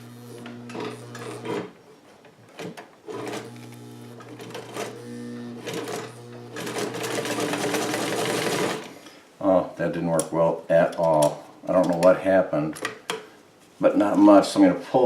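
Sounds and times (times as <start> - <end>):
sewing machine motor running: 0.0 - 1.7, 3.1 - 8.9.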